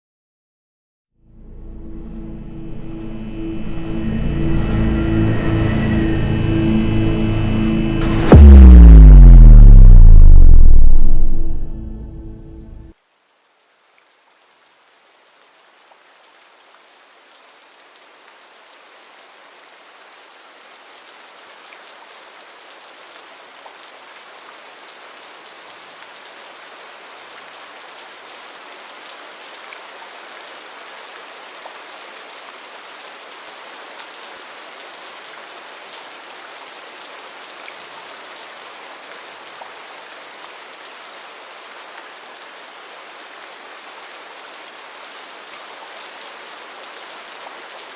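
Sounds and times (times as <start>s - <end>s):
rain falling: 12.2s - 47.9s.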